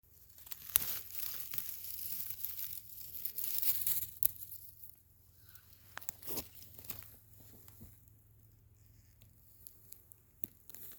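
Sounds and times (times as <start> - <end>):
dry rustling and crackling: 0.1 - 10.9
twigs snapping: 0.2 - 4.6, 9.2 - 10.9.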